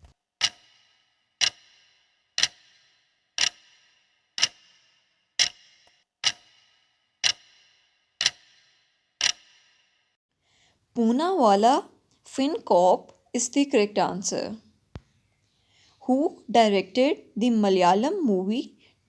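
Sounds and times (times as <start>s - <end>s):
clock ticking: 0.4s - 9.6s.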